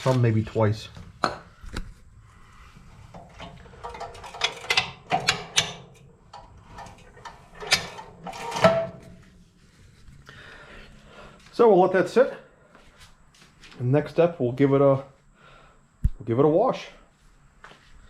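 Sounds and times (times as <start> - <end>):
tools knocking and clinking: 3.1 - 9.1.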